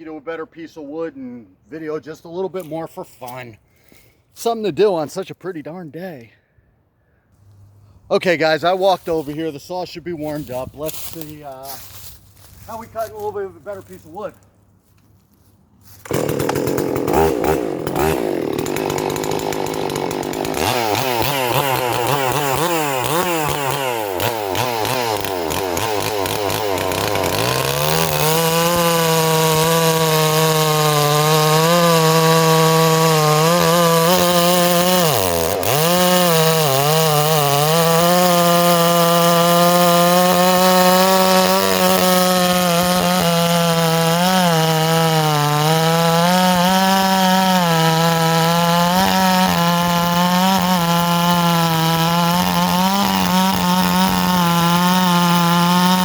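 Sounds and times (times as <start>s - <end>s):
chainsaw cutting wood: 10.2s - 15.0s, 15.8s - 56.0s.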